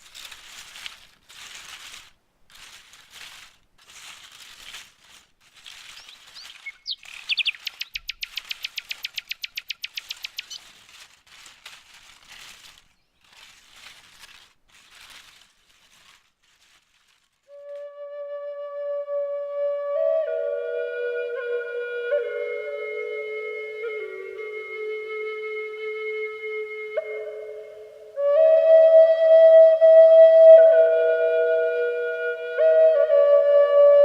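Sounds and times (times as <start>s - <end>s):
rustling bursts: 0.0s - 18.0s
birds chirping: 5.8s - 10.7s.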